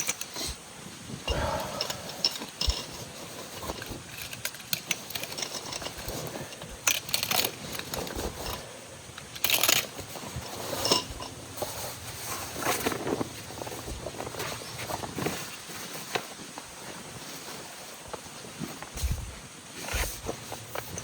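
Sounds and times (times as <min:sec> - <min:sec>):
gear clicking and clinking: 0:01.3 - 0:08.6, 0:09.2 - 0:11.3.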